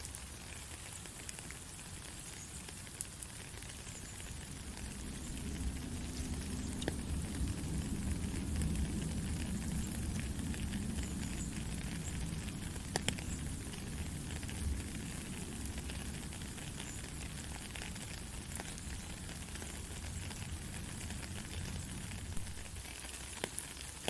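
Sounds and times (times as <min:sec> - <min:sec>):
heavy rain falling: 0:00.0 - 0:24.0
sharp drip clicks: 0:05.4 - 0:07.5, 0:09.6 - 0:13.8.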